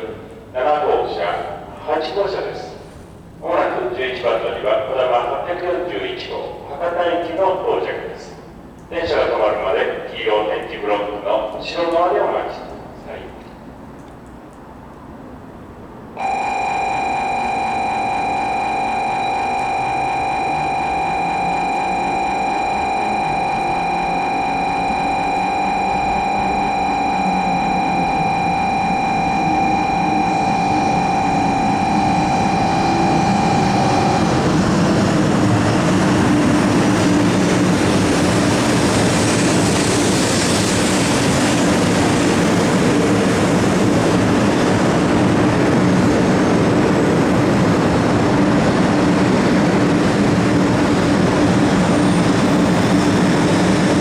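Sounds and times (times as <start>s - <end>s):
train arriving at a station: 0.0s - 54.0s
steady motor hum: 16.2s - 35.8s
high electronic tone: 16.2s - 35.9s.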